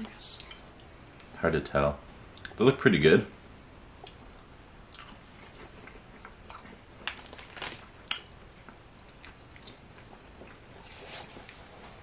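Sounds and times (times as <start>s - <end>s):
chewing gummy candy: 4.0s - 10.8s.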